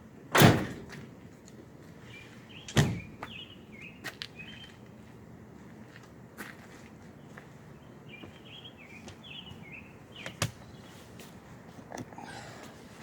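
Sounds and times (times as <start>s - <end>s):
faint birds chirping: 1.6s - 5.2s, 6.9s - 13.0s.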